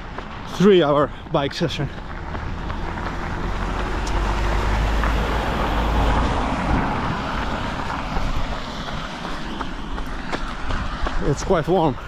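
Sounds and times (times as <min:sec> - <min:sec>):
vehicle passing: 0:00.3 - 0:12.0.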